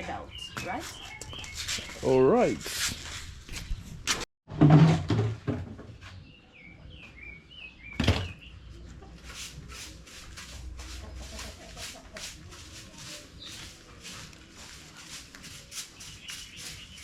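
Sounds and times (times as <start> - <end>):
broom sweeping floor: 0.6 - 4.2, 9.1 - 17.0
chickens chirping: 6.0 - 17.0.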